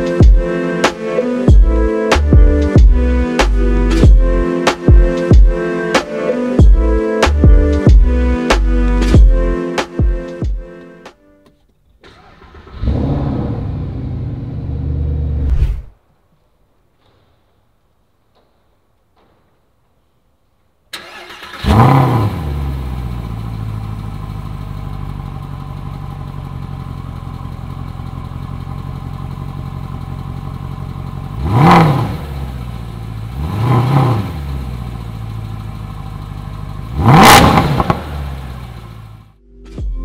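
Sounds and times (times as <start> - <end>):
car engine starting and idling: 11.8 - 15.5, 20.9 - 39.4
engine throttle blips: 21.0 - 39.3.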